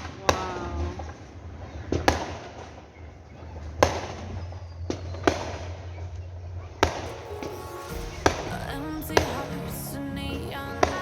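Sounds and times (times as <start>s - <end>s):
fireworks bangs: 6.8s - 11.0s.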